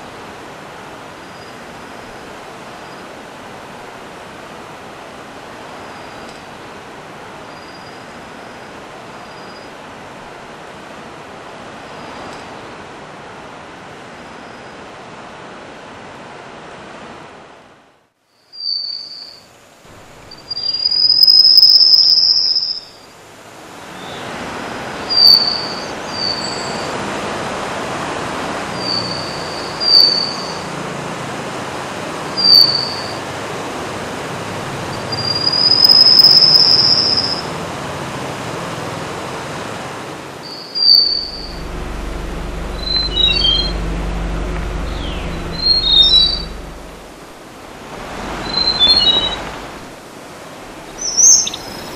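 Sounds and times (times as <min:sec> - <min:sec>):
low hum: 0:19.9 - 0:20.8, 0:41.1 - 0:51.9
songbird whistling: 0:20.3 - 0:22.9, 0:35.0 - 0:37.4, 0:40.5 - 0:44.1, 0:44.8 - 0:46.9, 0:48.4 - 0:49.5, 0:50.9 - 0:51.9.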